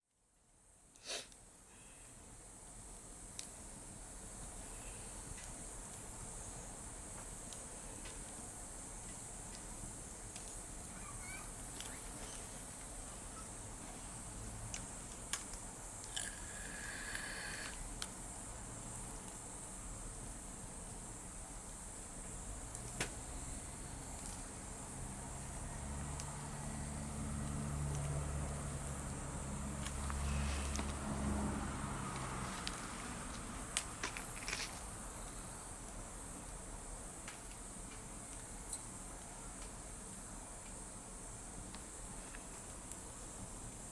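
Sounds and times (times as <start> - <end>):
campfire snap: 0.9 - 43.9
bonfire crackling and popping: 2.3 - 43.9
insects chirring: 3.9 - 43.9
faint ticks: 14.7 - 18.2.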